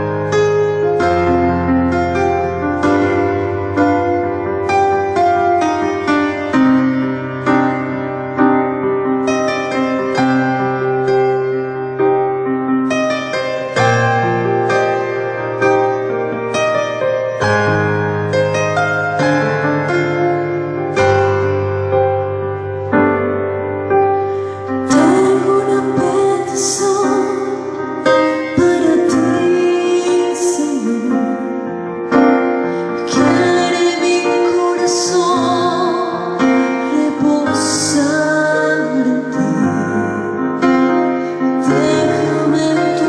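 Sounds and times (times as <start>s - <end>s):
keyboard accompaniment: 0.0s - 43.0s
woman singing with vibrato: 24.8s - 31.7s, 33.0s - 40.3s, 41.6s - 43.0s.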